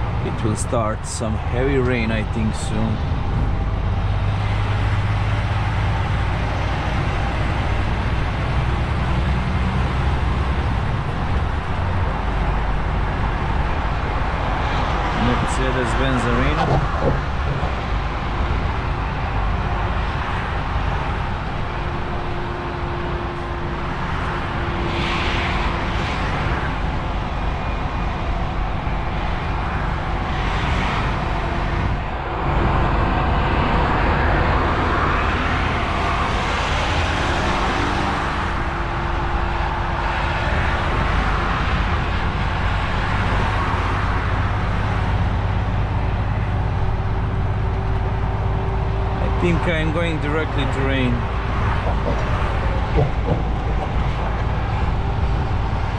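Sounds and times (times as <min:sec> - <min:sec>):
truck engine and road noise: 0:00.0 - 0:55.9.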